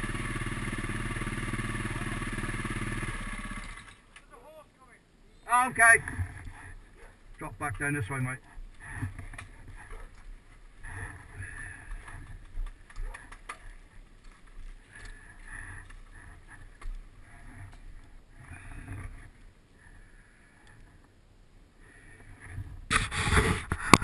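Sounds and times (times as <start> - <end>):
motorcycle engine running unevenly: 0.0 - 4.0.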